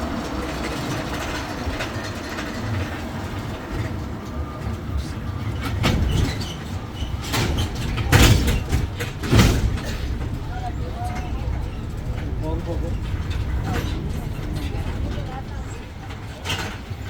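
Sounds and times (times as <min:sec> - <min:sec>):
road train rumble: 0:00.0 - 0:17.0
knocks and rattles: 0:05.6 - 0:17.0.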